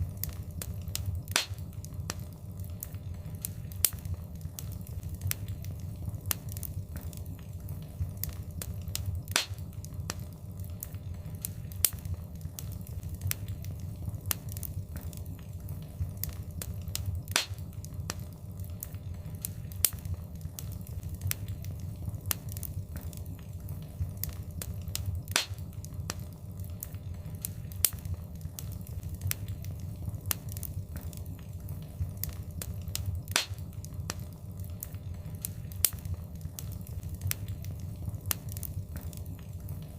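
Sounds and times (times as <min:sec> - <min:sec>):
fire crackling: 0:00.0 - 0:39.9
loud fire pop: 0:01.3 - 0:01.6, 0:09.3 - 0:09.6, 0:17.3 - 0:17.6, 0:25.3 - 0:25.6, 0:33.3 - 0:33.6.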